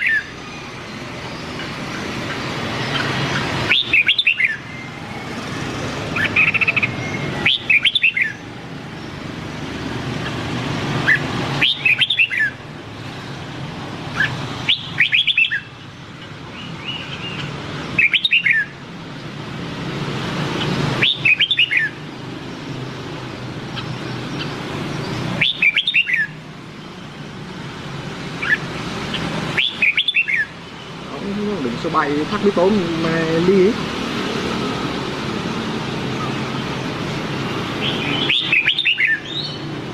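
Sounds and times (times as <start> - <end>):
bird singing whistled phrases: 0.0 - 0.3, 3.7 - 4.9, 6.2 - 8.4, 11.1 - 12.6, 14.2 - 15.7, 16.8 - 18.7, 21.0 - 22.0, 25.4 - 26.4, 29.6 - 30.5, 37.8 - 39.6.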